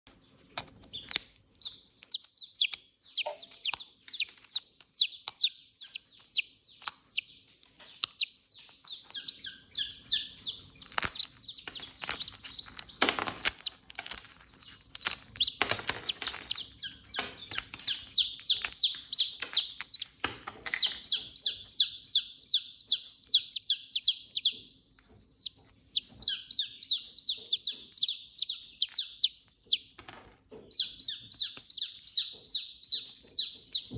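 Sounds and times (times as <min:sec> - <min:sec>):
chick peeping: 0:00.2 - 0:33.9
clicks and knocks: 0:10.8 - 0:21.3.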